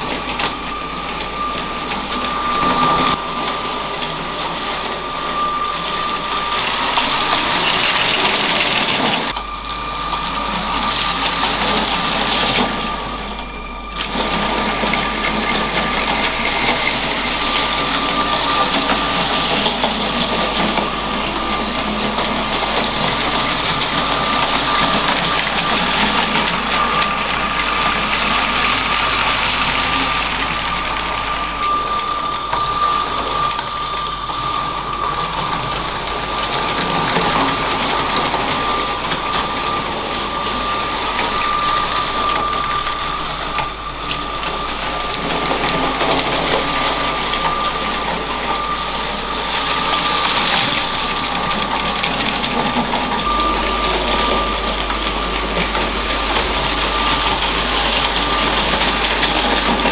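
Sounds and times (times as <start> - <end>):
toy train motor whine: 0.0 - 59.9
toy train rattling on plastic track: 0.0 - 59.9.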